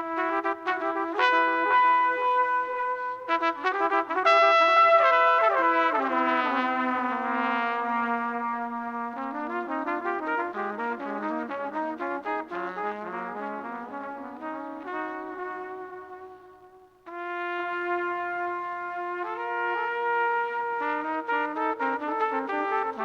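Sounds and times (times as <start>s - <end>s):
trumpet playing jazz melody: 0.0s - 23.0s.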